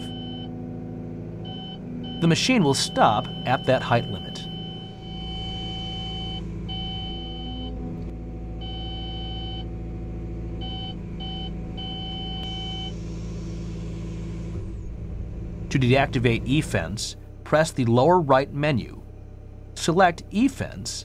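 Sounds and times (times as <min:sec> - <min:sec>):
warning tone beeps: 0:00.0 - 0:00.5, 0:01.4 - 0:07.8, 0:08.6 - 0:09.7, 0:10.6 - 0:13.0
diesel engine running: 0:00.0 - 0:21.0.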